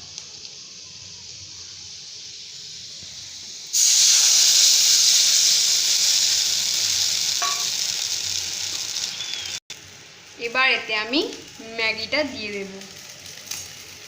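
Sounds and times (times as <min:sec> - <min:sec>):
loud hiss of sizzling steam: 0:00.0 - 0:14.0
oil frying sizzle: 0:00.0 - 0:14.0.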